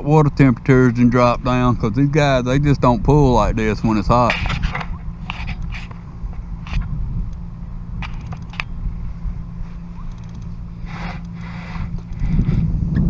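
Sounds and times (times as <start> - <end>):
wind rumble on microphone: 0.0 - 13.0
clicks and ticks of handling gear: 10.1 - 10.5.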